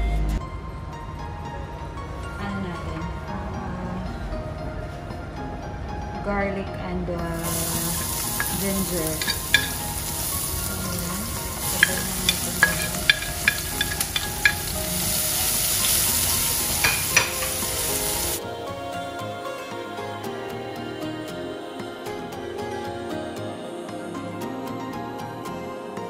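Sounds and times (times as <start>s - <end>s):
garlic sizzling in hot oil: 7.4s - 18.4s
spatula tapping against pan: 11.6s - 14.8s, 16.9s - 17.7s.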